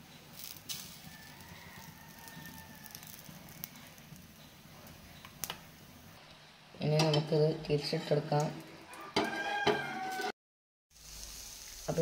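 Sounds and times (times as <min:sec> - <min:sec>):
bread frying in oil: 0:00.0 - 0:06.2, 0:10.9 - 0:12.0.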